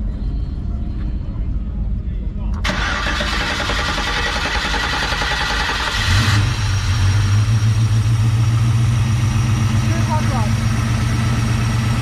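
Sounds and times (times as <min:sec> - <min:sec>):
truck engine running: 0:02.5 - 0:12.0
engine hiss: 0:02.6 - 0:08.8.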